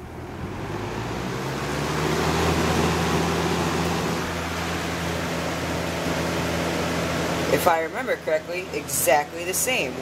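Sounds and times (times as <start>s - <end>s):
box fan air rushing: 0.0s - 7.6s
low motor hum: 0.0s - 10.0s.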